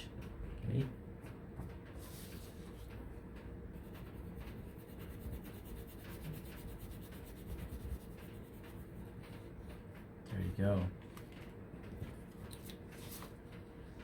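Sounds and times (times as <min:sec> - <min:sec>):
crayon rubbing on paper: 0:03.8 - 0:08.8.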